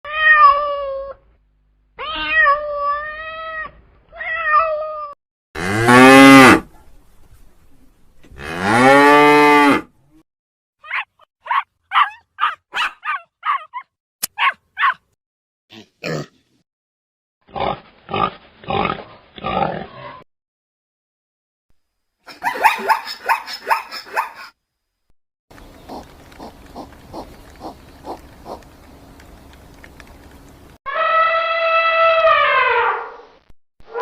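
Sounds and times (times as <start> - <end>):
cat meowing: 2.0 - 5.1
cow mooing: 5.6 - 6.6, 8.4 - 9.9.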